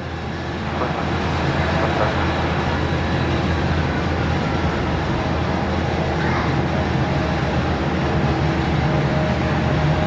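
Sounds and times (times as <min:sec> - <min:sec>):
airliner engine rumble: 0:00.0 - 0:10.0.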